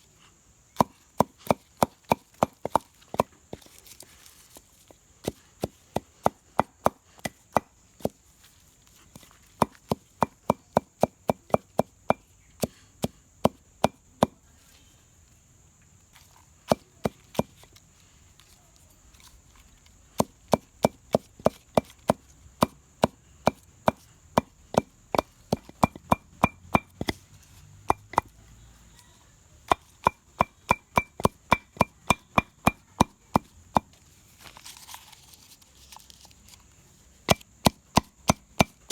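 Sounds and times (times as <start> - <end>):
chopping on wooden surface: 0.8 - 3.7, 5.2 - 8.2, 9.6 - 14.4, 16.7 - 17.7, 20.2 - 27.2, 27.9 - 28.4, 29.7 - 34.0, 37.3 - 38.9.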